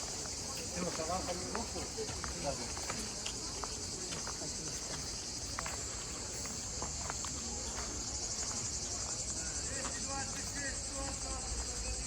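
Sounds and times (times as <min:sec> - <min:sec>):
insects chirring: 0:08.0 - 0:12.0.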